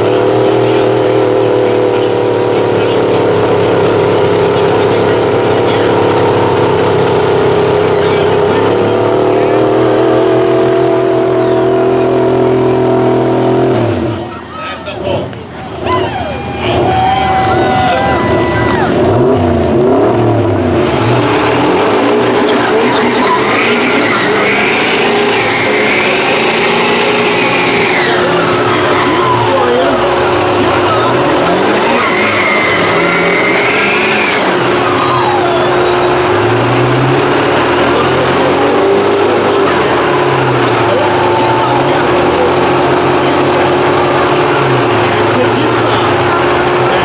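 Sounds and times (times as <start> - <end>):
truck engine running: 0.0 - 47.0.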